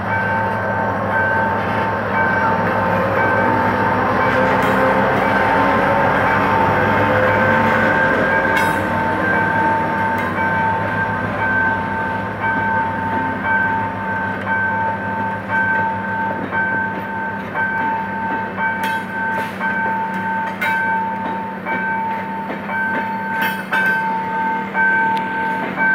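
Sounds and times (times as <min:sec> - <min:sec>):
level-crossing alarm beeping: 0:00.0 - 0:25.9
train coaches rumbling past: 0:00.0 - 0:25.9
wheel clacks over rail joints: 0:04.1 - 0:11.8.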